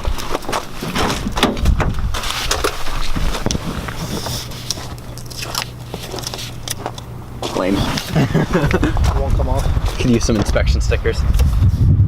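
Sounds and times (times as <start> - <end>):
crunching and scraping car parts: 0.0 - 8.2
low steady hum: 0.0 - 12.0.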